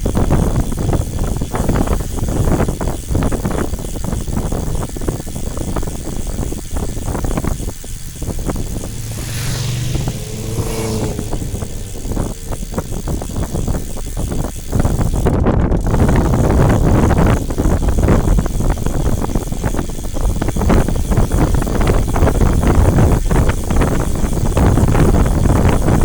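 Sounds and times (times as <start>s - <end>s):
wind buffeting microphone: 0.0s - 26.0s
vehicle engine passing: 8.0s - 13.9s.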